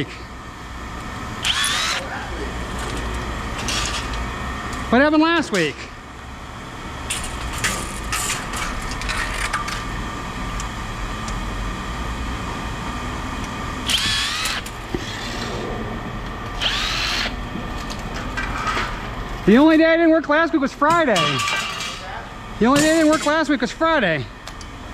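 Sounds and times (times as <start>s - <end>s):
low machine hum: 0.0s - 24.9s
high whirs: 1.0s - 19.6s
power tool running in bursts: 1.2s - 4.4s, 13.7s - 15.8s, 16.4s - 17.9s.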